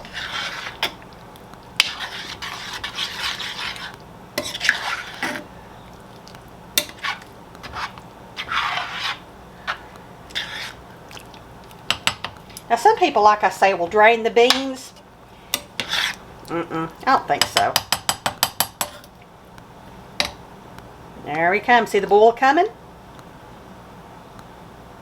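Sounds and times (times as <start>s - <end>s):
spoon scraping pot bottom: 0.0s - 1.0s, 1.8s - 5.5s, 6.8s - 10.8s, 15.6s - 16.2s
spoon knocking against pot: 11.9s - 12.4s, 17.4s - 19.0s.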